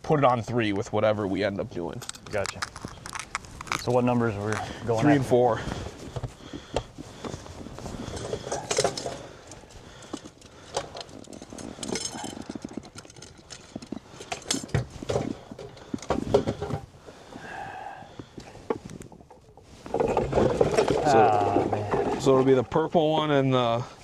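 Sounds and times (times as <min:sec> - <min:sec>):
gear clicking and knocking in a boat: 0:05.7 - 0:17.4.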